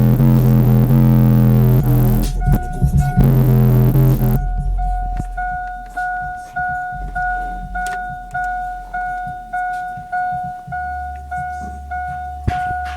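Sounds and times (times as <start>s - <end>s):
electronic warning chime dinging: 0.0s - 4.6s
bass-heavy music: 0.0s - 9.8s.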